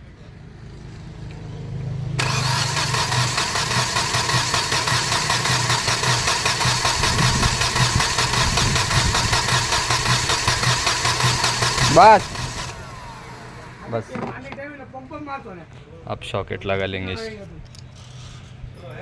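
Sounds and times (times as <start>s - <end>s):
engine cranking on starter motor: 2.2s - 14.2s.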